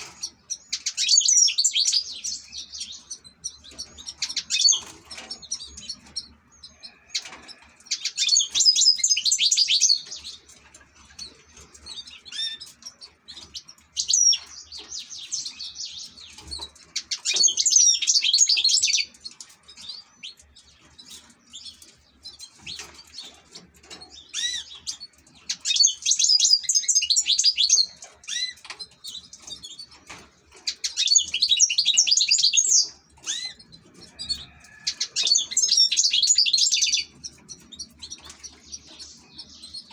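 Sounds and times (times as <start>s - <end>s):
goldfinch twittering and chirping: 0.0s - 39.9s.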